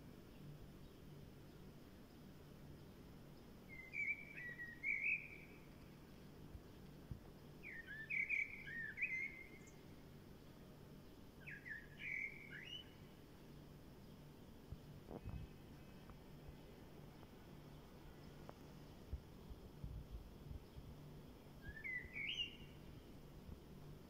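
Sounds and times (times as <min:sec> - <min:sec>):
faint low hum: 0:00.0 - 0:24.0
songbird warbling: 0:03.7 - 0:05.7, 0:07.6 - 0:09.8, 0:11.4 - 0:13.0, 0:21.6 - 0:22.9.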